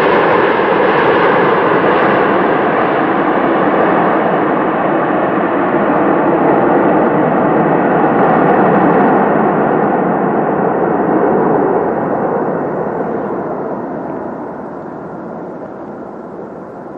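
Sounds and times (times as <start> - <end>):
jet engine rushing: 0.0 - 16.9.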